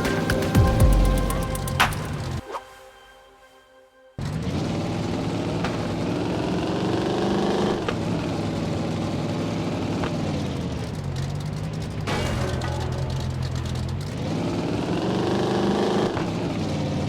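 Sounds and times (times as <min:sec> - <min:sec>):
car engine revving and idling: 0:04.2 - 0:17.0.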